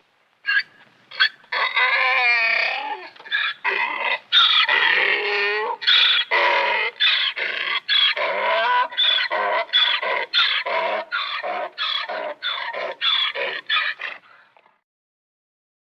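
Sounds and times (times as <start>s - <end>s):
donkey braying: 0.4s - 14.5s.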